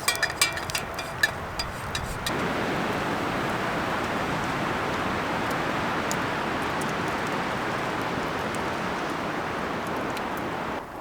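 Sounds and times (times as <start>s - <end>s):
strong wind through trees: 0.0s - 11.0s.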